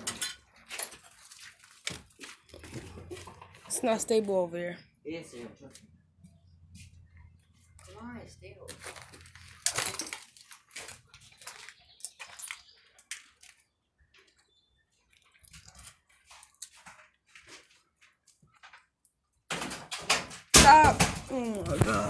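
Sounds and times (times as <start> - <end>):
footsteps crunching over debris: 0.3 - 4.6, 8.6 - 18.9.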